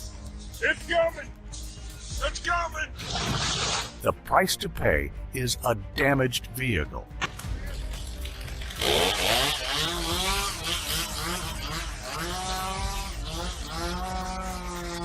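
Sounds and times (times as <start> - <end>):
chainsaw engine revving: 8.3 - 15.0.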